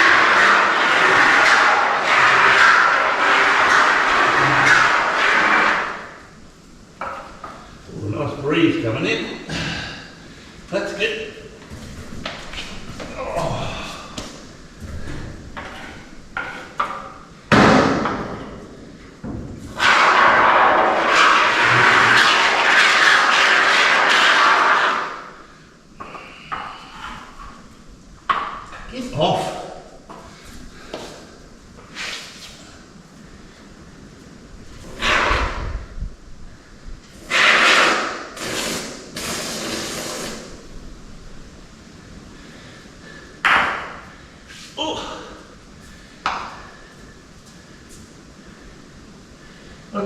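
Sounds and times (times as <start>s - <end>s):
spray foam can hissing: 37.3s - 40.6s.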